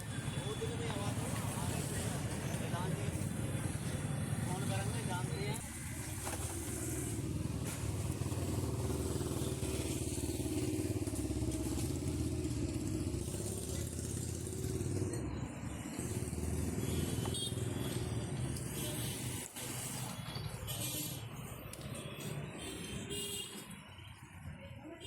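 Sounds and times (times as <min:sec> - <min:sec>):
motorcycle engine idling: 0:06.0 - 0:15.0.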